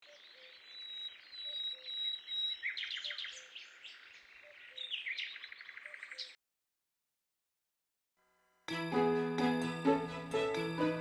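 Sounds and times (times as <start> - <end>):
sharp bird chirps: 0.0 - 6.4.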